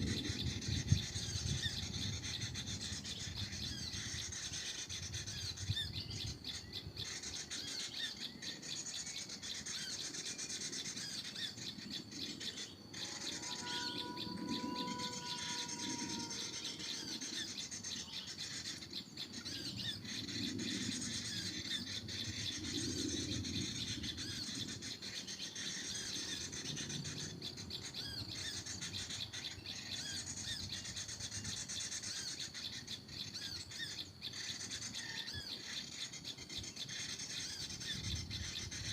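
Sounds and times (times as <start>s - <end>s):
small birds chirping: 0.0s - 38.9s
steady whistled tone: 8.1s - 18.7s.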